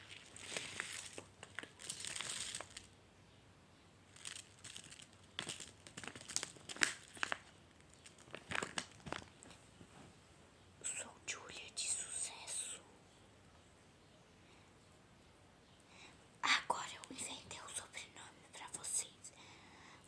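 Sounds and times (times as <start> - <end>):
crinkly plastic being handled: 0.0 - 2.9, 4.1 - 10.0.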